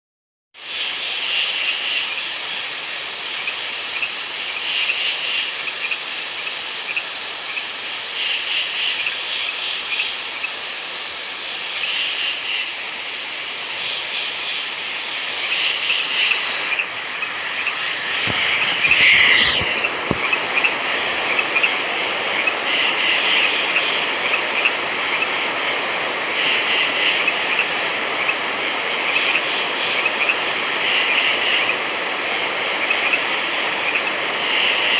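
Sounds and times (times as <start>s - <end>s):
frogs trilling: 11.5s - 12.8s
frog call with falling sweep: 13.8s - 25.4s.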